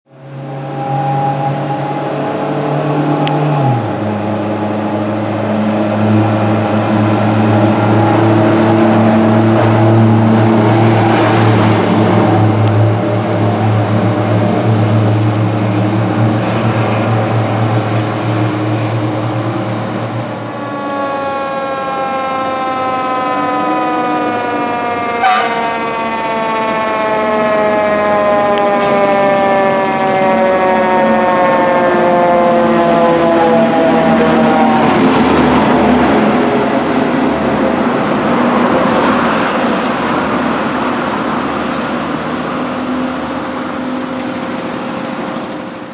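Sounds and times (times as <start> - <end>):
fire truck engine: 0.1 - 45.9
siren wailing: 0.3 - 45.0
low horn-like tone: 25.2 - 25.8.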